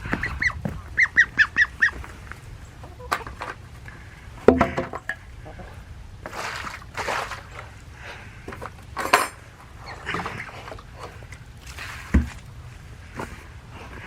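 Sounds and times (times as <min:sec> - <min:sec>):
water and ice sloshing: 0:06.2 - 0:13.4
hard knock on waterer: 0:12.1 - 0:12.4.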